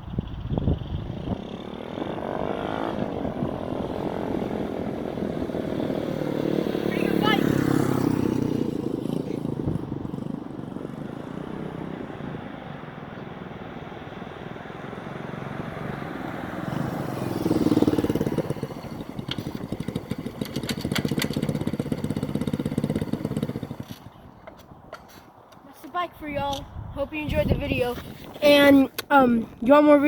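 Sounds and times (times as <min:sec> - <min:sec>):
motorbike engine running: 0:17.1 - 0:24.0.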